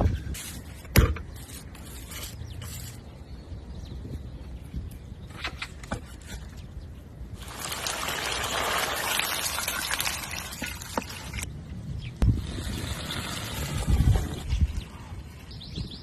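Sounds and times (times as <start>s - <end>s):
liquid pouring: 7.4s - 11.4s.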